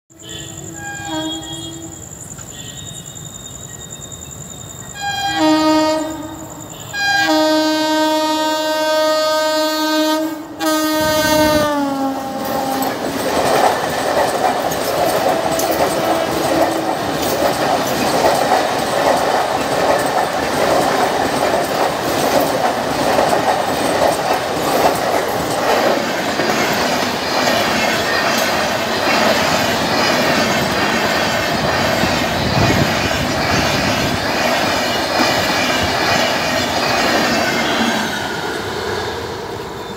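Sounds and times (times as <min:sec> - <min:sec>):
locomotive air horn: 0:00.1 - 0:02.0, 0:05.0 - 0:12.9
train coaches rumbling past: 0:00.1 - 0:39.9.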